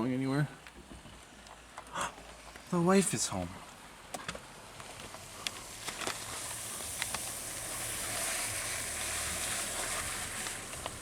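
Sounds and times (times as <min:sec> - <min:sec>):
car engine approaching: 0:03.9 - 0:11.0
tyre hiss: 0:05.1 - 0:11.0.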